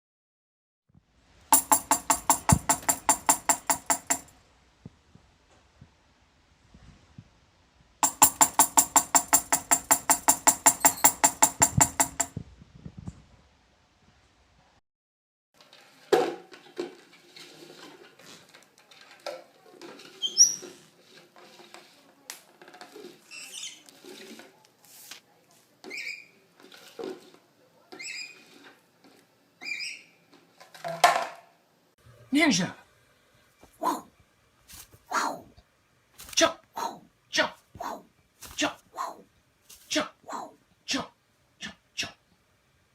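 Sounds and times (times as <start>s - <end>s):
tambourine jingling: 1.6s - 4.3s, 8.0s - 12.3s
parrot scuffling and tapping: 8.0s - 12.4s
parrot high chirp: 29.6s - 30.2s.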